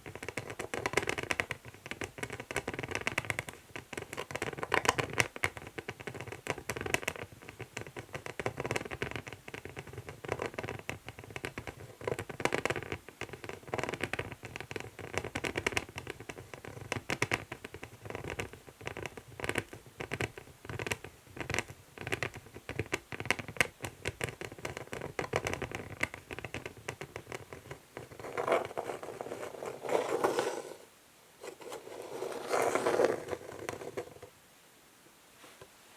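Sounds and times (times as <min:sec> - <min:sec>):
fingernails scratching wooden board: 0:31.4 - 0:34.3.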